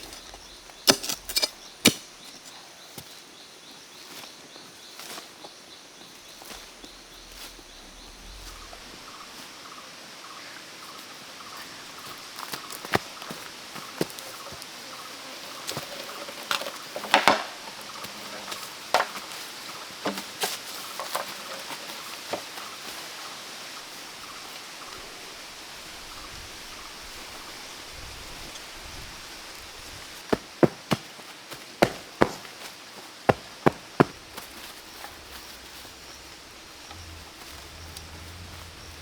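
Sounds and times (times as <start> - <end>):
steady high forest hiss: 0.0 - 39.0
chopping strikes: 0.8 - 2.2
wood knocking and cracking: 16.6 - 17.6.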